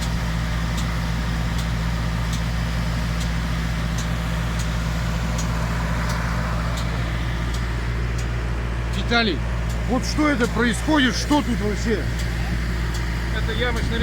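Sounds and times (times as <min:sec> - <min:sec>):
machine engine running steadily: 0:00.0 - 0:14.0
faint light clicks: 0:05.4 - 0:08.3.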